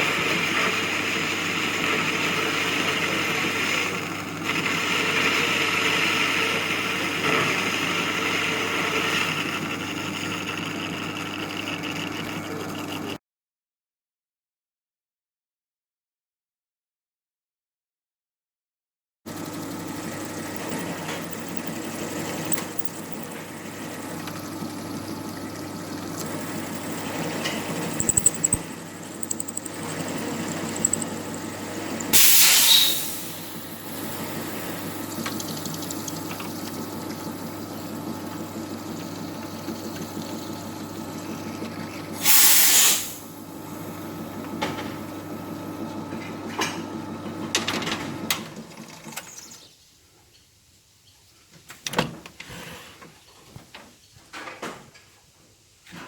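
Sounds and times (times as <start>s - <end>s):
metal lathe motor hum: 6.0s - 13.2s, 19.3s - 32.3s
cutting and scraping metal: 19.4s - 24.1s, 25.7s - 33.5s
loud hissing bursts: 28.9s - 35.0s, 42.2s - 43.2s.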